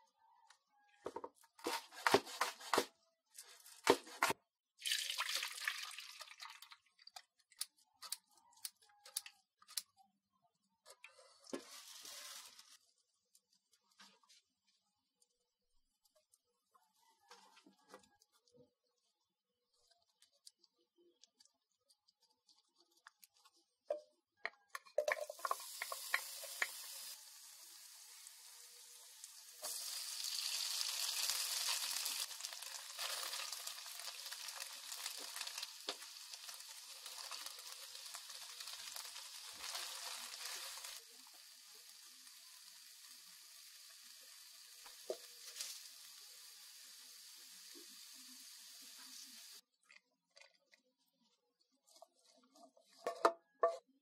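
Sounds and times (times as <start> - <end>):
hot oil sizzling in a frying pan: 25.0 - 49.6
foil wrapper crinkling: 31.0 - 41.1.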